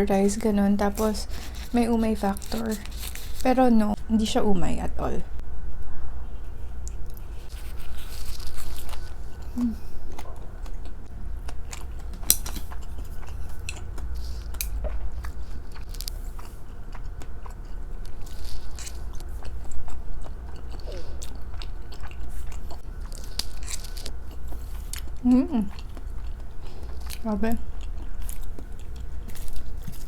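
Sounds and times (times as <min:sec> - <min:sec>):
chewing and biting food: 0:06.8 - 0:30.0.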